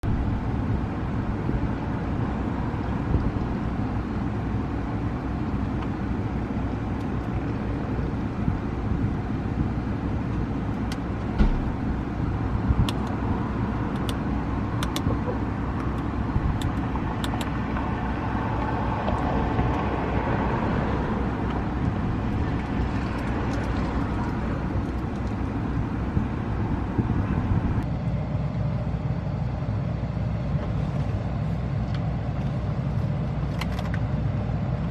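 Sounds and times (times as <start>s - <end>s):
car cabin rumble: 0.0s - 27.9s.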